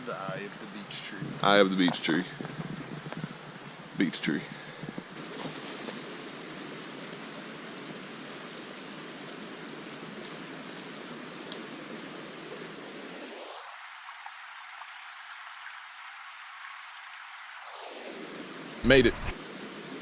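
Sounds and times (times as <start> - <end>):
stream water rushing: 5.1 - 20.0.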